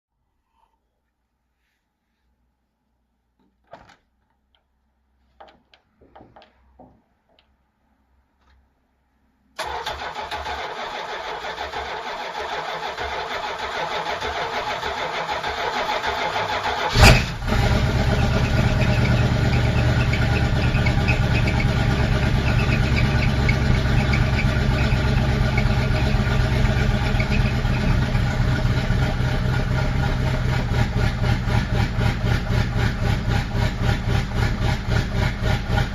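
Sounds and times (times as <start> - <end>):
engine starter cranking: 9.6 - 29.7
engine deep pulsing idle: 16.9 - 35.9.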